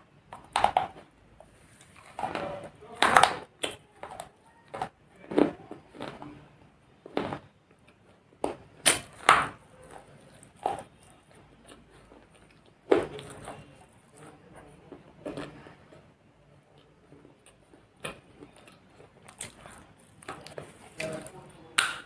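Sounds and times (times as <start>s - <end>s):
hard objects knocking and scraping: 0.3s - 6.3s.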